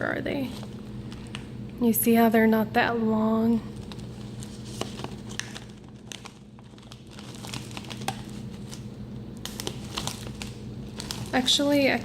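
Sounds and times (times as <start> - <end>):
chip bag crinkling: 3.7 - 12.0.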